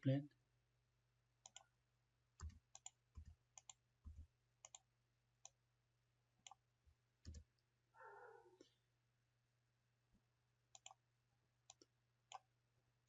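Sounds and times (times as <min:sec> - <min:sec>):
computer mouse clicks: 0:01.4 - 0:01.7, 0:02.4 - 0:05.6, 0:06.4 - 0:06.6, 0:07.2 - 0:07.5, 0:10.7 - 0:11.0, 0:11.7 - 0:12.5.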